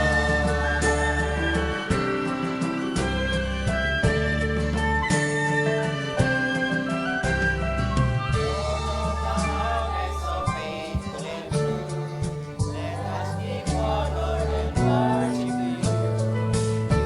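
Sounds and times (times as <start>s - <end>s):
church choir singing: 0.0s - 4.0s, 8.3s - 17.0s
sustained bass notes: 0.0s - 5.1s, 7.3s - 17.0s
drum strikes: 7.3s - 17.0s.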